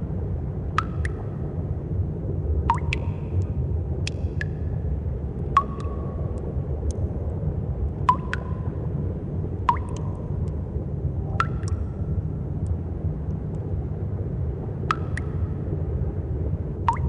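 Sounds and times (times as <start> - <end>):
steady low rumble: 0.0 - 17.0
water drops plinking into pool: 0.7 - 1.4, 2.7 - 4.7, 5.5 - 7.0, 8.0 - 8.8, 9.6 - 10.6, 11.3 - 12.0, 14.8 - 15.5.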